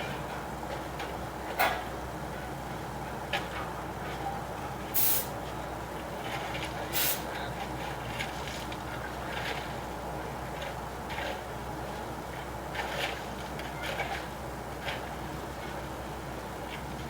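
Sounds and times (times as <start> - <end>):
low mechanical hum: 0.0 - 17.0
sharp bursts of hiss: 5.0 - 5.3.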